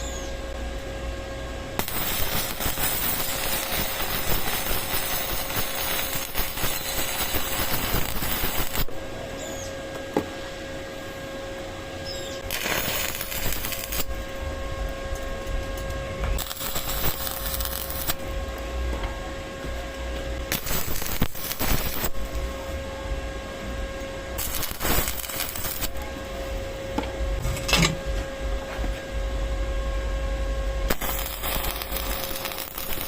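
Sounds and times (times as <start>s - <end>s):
welding arc crackling and hissing: 1.8s - 9.0s, 12.2s - 19.0s, 19.6s - 22.8s, 23.7s - 27.3s, 30.8s - 33.0s.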